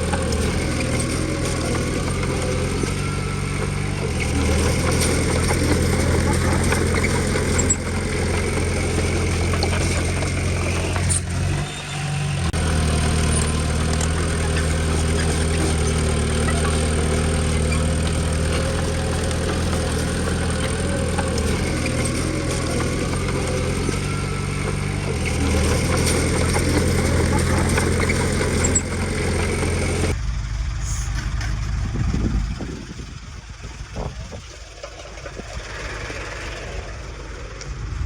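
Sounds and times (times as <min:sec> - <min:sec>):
bulldozer diesel engine running: 0:00.0 - 0:38.0.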